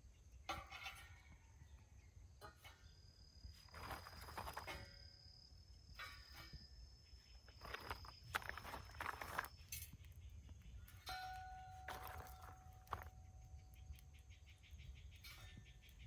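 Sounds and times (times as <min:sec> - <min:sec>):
high insect trill: 0:02.6 - 0:16.0
crunching and rustling: 0:03.6 - 0:04.9, 0:07.4 - 0:10.1, 0:11.7 - 0:13.4.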